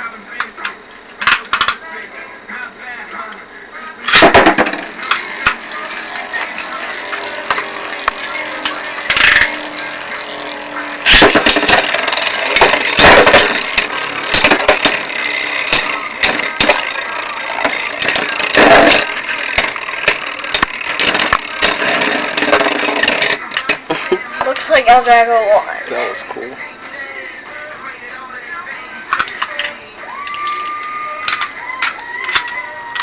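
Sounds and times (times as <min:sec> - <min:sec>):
spinning tops scraping and clicking: 0:04.1 - 0:23.8, 0:29.1 - 0:33.0
spinning tops whirring: 0:04.1 - 0:24.8, 0:29.1 - 0:33.0.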